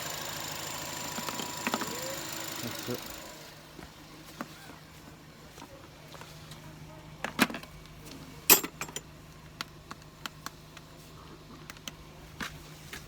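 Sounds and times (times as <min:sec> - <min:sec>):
sharp metallic clanks: 0:08.5 - 0:09.1.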